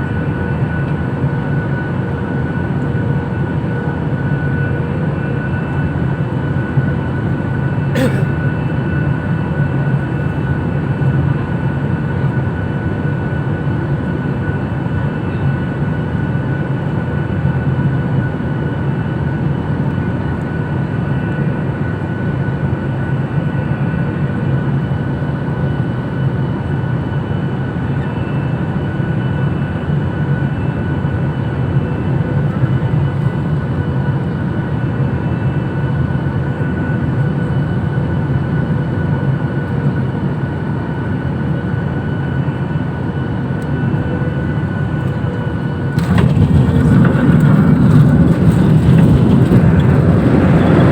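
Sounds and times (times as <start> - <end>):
engine and airflow rush: 31.3 - 50.9.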